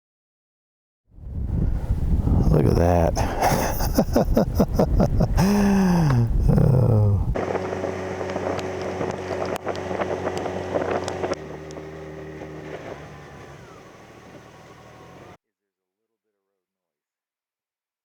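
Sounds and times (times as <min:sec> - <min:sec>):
wind noise: 0:01.1 - 0:11.4
motorcycle engine running: 0:07.3 - 0:15.4.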